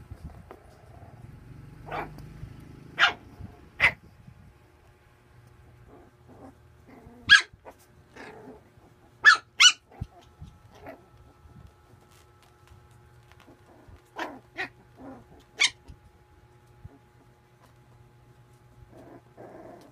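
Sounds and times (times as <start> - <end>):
puppy barking: 1.8 - 2.2, 2.9 - 4.0, 7.2 - 7.8, 9.2 - 11.0, 14.1 - 14.8, 15.4 - 15.9.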